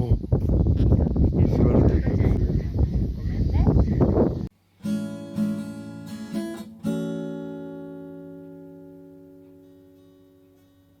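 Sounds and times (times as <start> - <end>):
acoustic guitar strumming: 4.6 - 11.0.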